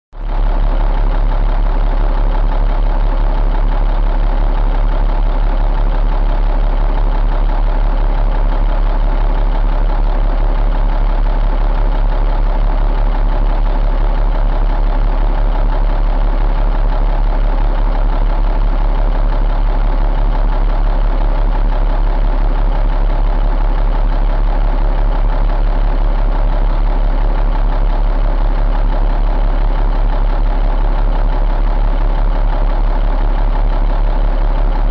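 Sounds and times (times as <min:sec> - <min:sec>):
diesel engine idling: 0:00.2 - 0:34.9.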